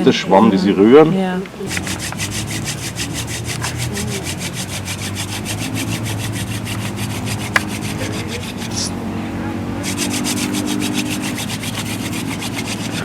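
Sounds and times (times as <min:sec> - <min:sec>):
rasping strokes on wood: 0:01.6 - 0:13.0.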